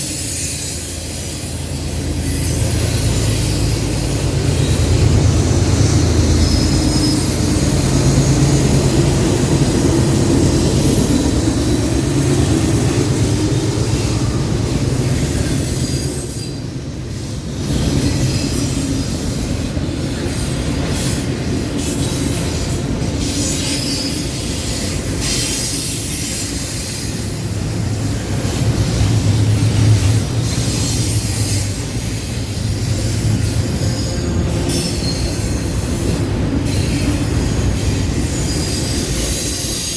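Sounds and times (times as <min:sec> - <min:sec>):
wheel squeal: 0:00.0 - 0:05.0, 0:05.7 - 0:08.8, 0:13.9 - 0:16.8, 0:21.8 - 0:27.2, 0:32.9 - 0:39.9
freight train cars rolling: 0:00.0 - 0:39.9.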